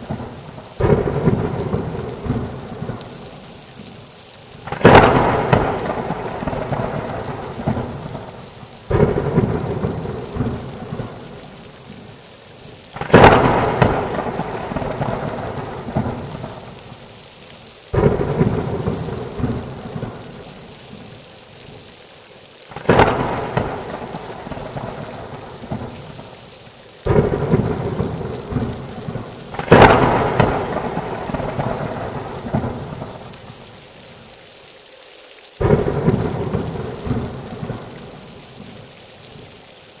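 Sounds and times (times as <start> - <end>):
thunderclaps rolling: 0.0 - 3.2, 4.7 - 11.4, 13.0 - 16.8, 18.0 - 20.4, 22.7 - 26.2, 27.1 - 33.3, 35.6 - 38.0
heavy rain: 0.0 - 40.0.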